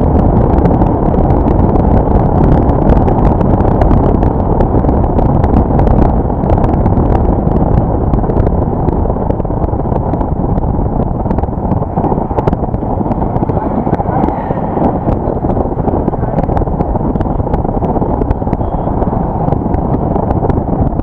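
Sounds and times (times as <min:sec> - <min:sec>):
road and wind noise: 0:00.0 - 0:21.0.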